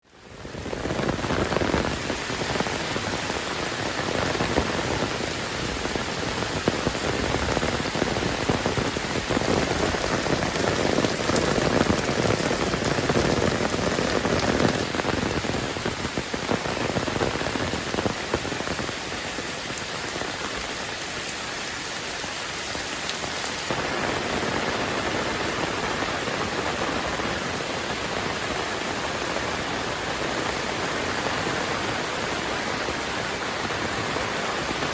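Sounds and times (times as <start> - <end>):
heavy rain falling: 0.0 - 34.9
raindrop ticks: 5.9 - 18.9.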